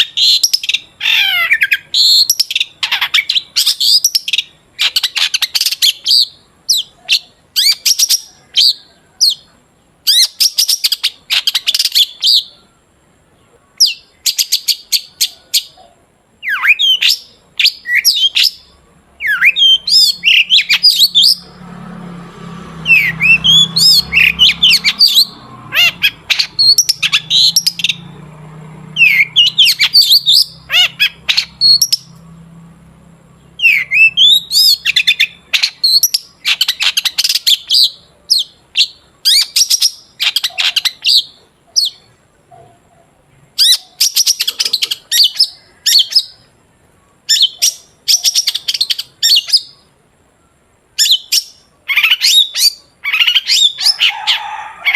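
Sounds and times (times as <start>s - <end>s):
shrike chattering song: 16.4s - 21.6s, 22.8s - 32.2s, 33.3s - 42.3s, 43.5s - 46.5s.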